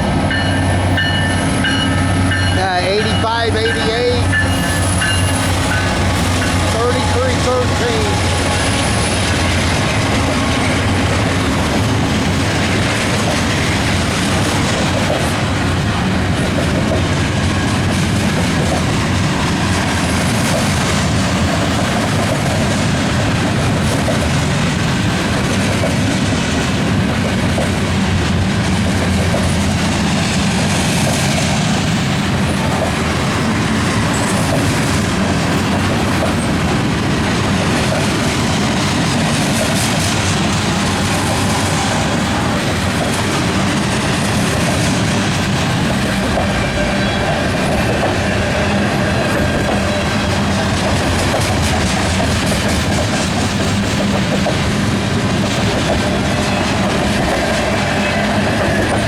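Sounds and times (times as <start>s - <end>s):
freight train wheels rumbling on rails: 0.0s - 59.0s.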